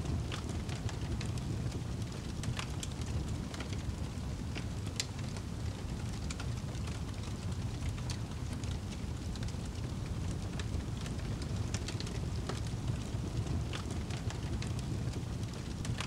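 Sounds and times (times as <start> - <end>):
fire crackling and popping: 0.0 - 16.0
fire rumbling: 0.0 - 16.0.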